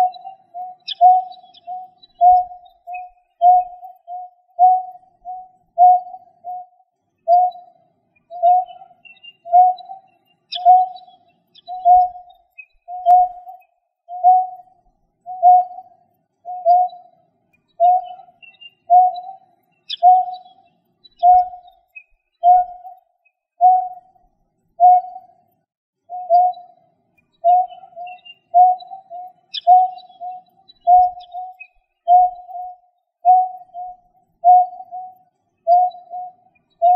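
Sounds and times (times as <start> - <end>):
bird low hooting call: 0.0 - 6.7, 8.3 - 11.0, 11.7 - 12.3, 17.8 - 20.4, 27.4 - 35.1
faint higher chirps: 0.0 - 36.9.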